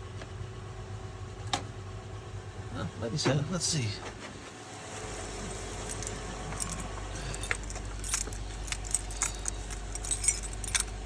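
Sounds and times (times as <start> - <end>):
steady low hum: 0.0 - 11.0
car keys jangling: 5.1 - 11.0.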